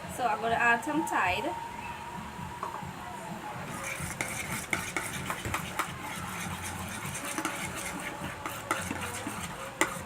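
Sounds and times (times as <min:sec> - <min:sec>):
utensil scraping bowl: 0:03.7 - 0:10.0
utensil stirring sticky slime: 0:03.7 - 0:10.0.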